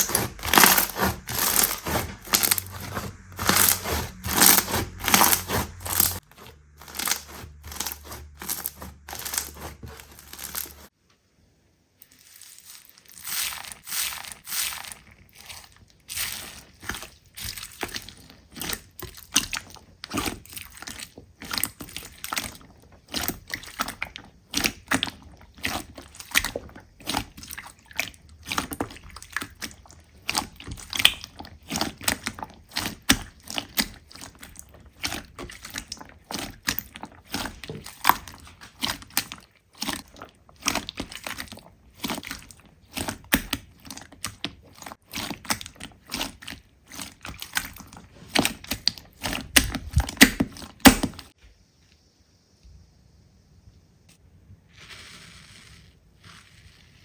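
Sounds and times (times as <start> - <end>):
slime squeezed by hand: 0.0 - 10.9.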